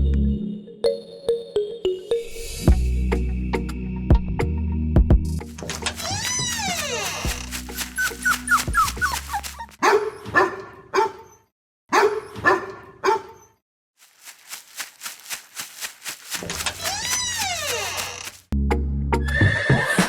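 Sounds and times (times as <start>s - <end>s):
dog barking: 8.0s - 13.6s.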